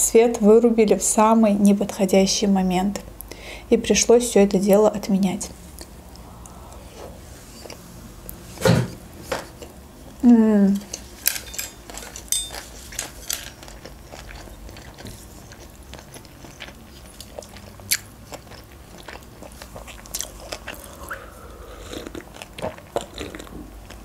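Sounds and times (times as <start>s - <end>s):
chewing food: 11.8s - 24.0s
wet mouth clicks: 20.2s - 23.4s
sip from a mug: 20.8s - 22.2s.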